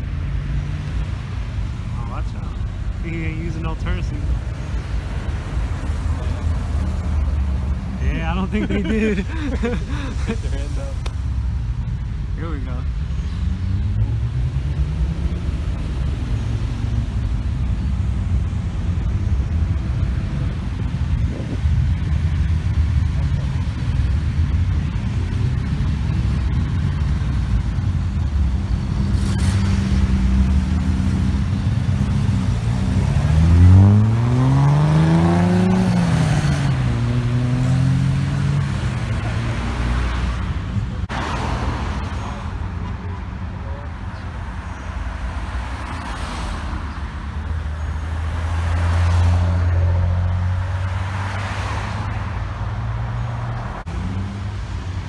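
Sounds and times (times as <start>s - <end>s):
car engines idling: 0.0s - 55.0s
car revving and accelerating: 0.0s - 55.0s.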